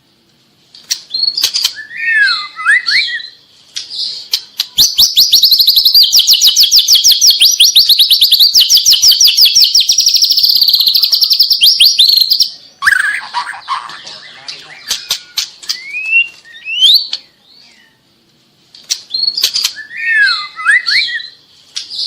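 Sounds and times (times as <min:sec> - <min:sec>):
bird singing whistled notes: 0:01.1 - 0:03.4, 0:04.7 - 0:13.2, 0:14.1 - 0:18.0, 0:19.1 - 0:22.0.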